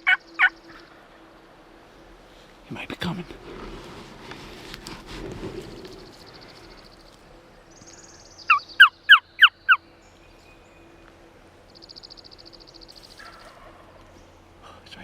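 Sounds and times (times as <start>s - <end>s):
turkey yelps: 0.0s - 0.8s, 8.5s - 9.8s, 13.2s - 14.0s
faint high songbird trill: 5.7s - 15.0s.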